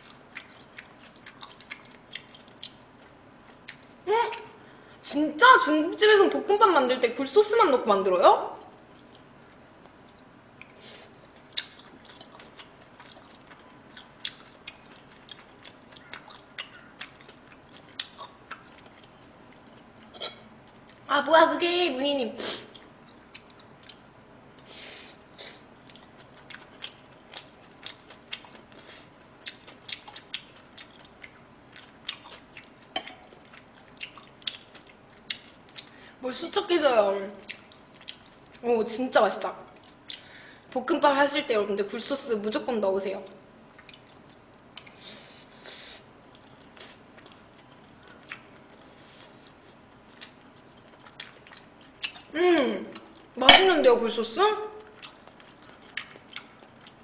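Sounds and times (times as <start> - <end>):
person chewing food: 0.0 - 4.6, 8.7 - 21.1, 22.6 - 36.1, 37.4 - 38.6, 39.7 - 40.8, 43.6 - 53.7, 54.8 - 57.0.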